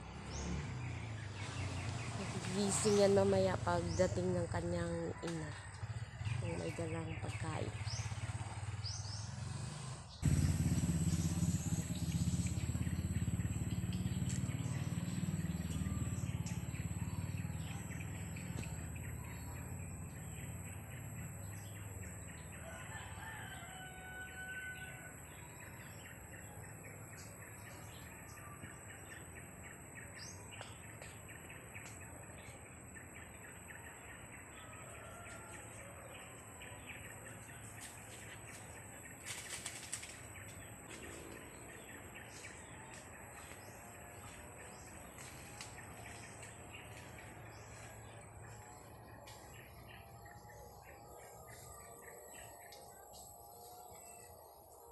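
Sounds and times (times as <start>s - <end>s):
low rumble on microphone: 10.2s - 22.2s.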